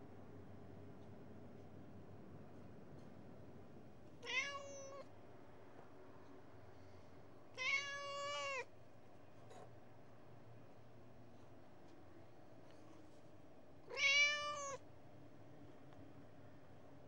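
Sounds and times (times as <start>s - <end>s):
cat meowing: 4.2s - 5.1s, 7.6s - 8.7s, 13.9s - 14.8s.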